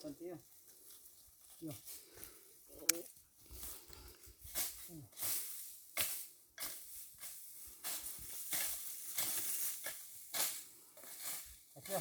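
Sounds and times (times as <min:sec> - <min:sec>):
rustling in dry leaves: 0:00.0 - 0:12.0.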